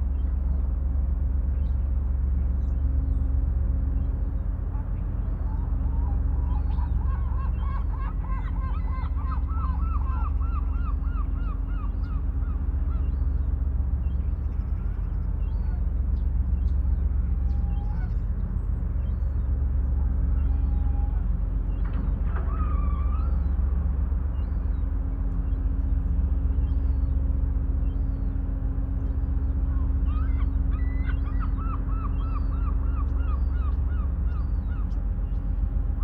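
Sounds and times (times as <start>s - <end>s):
other birds calling: 4.8s - 13.2s, 29.6s - 35.7s.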